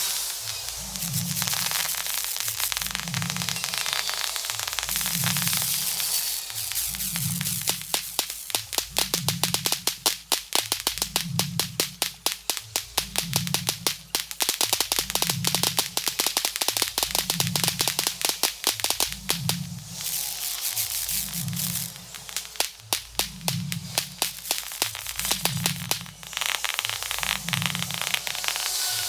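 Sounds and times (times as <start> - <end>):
firework battery cracking: 0.0 - 29.0.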